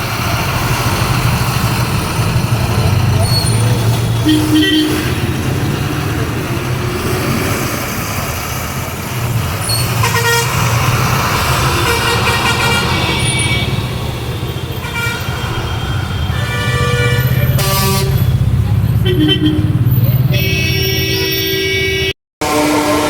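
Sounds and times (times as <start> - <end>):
diesel engine drone: 0.0 - 23.0
vehicle horn: 4.1 - 5.4, 10.0 - 10.6, 11.6 - 18.4, 19.0 - 23.0.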